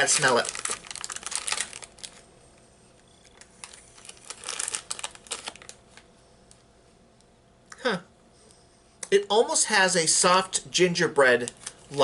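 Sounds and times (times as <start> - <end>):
plastic wrapper crinkling: 0.0 - 2.2, 3.2 - 6.1, 11.3 - 12.0.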